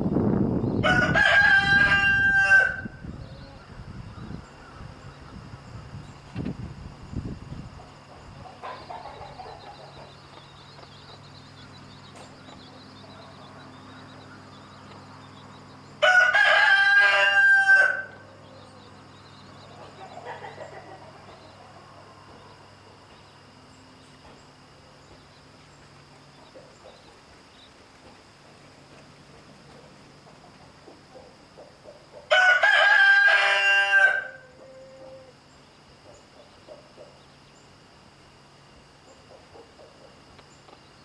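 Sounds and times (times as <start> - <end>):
rooster crowing: 0.8 - 3.6, 16.0 - 18.9, 32.3 - 35.4.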